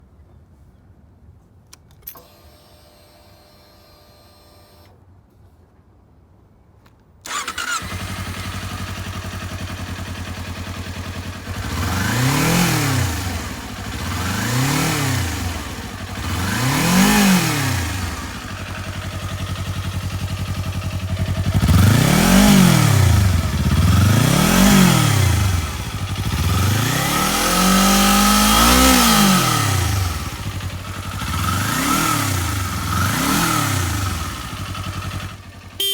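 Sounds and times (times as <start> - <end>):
motorcycle engine starting: 7.2 - 35.9
motorcycle engine revving: 7.3 - 35.9.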